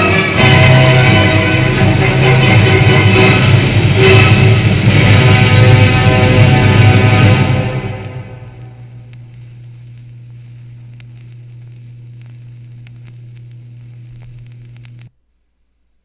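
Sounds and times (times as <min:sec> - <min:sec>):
orchestral music: 0:00.0 - 0:08.9
low playback hum: 0:00.0 - 0:16.0
vinyl surface clicks: 0:10.8 - 0:15.1.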